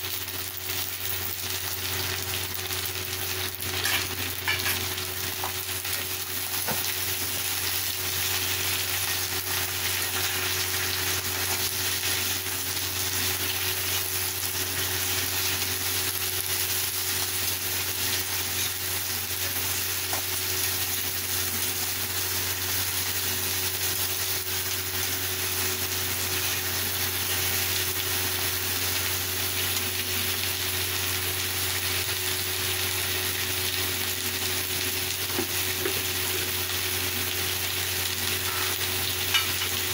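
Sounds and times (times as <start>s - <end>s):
beans sizzling in oil: 0.0s - 39.9s
metal spatula scraping and tapping: 38.5s - 39.8s.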